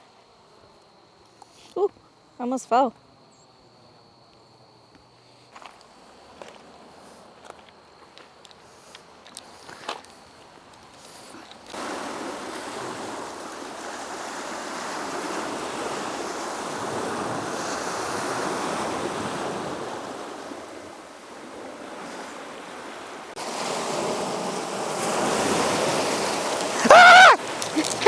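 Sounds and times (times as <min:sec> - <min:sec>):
ocean surf washing ashore: 0:11.8 - 0:28.0.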